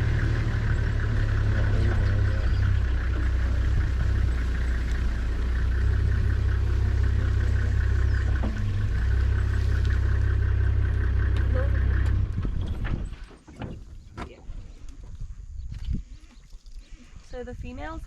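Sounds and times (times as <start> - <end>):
car engine idling: 0.0 - 13.5.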